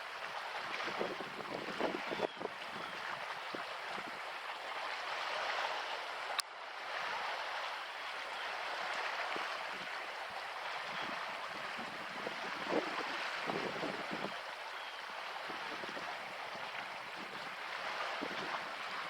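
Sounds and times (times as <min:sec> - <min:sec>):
water washing along shore: 0:00.0 - 0:19.0.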